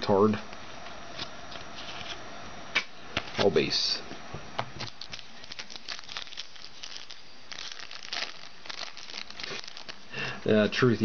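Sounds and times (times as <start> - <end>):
wrapper crinkling and rustling: 4.8 - 10.1.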